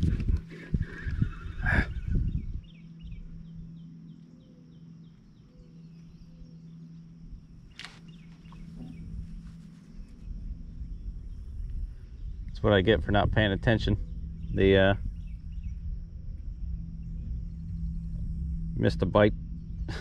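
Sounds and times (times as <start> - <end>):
faint low hum: 0.0 - 20.0
light outdoor rumble: 0.0 - 20.0
bird chirping: 0.5 - 20.0
sharp click: 7.7 - 8.0.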